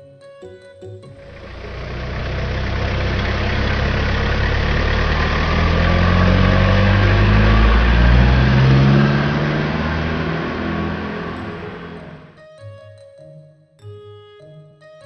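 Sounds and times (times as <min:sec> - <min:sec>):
truck engine revving: 0:01.2 - 0:12.4.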